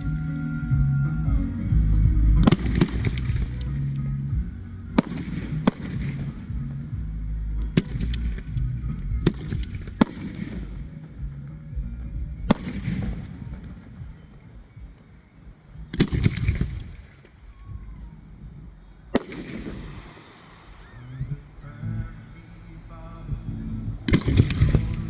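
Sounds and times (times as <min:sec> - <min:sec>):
background music: 0:00.0 - 0:25.0
fireworks bangs echoing: 0:02.4 - 0:21.1, 0:24.0 - 0:25.0.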